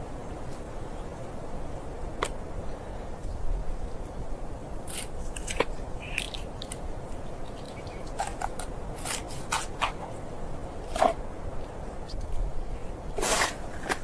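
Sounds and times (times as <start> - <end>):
sharp crackles and crunches: 4.8 - 10.2, 13.2 - 14.0.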